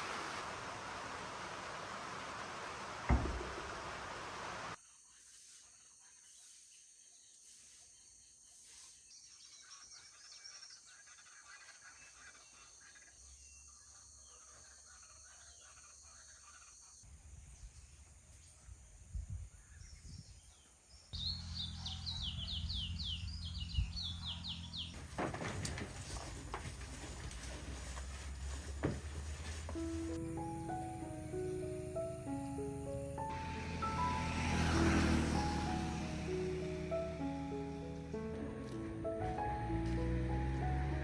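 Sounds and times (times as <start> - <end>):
small birds chirping: 17.6 - 25.0.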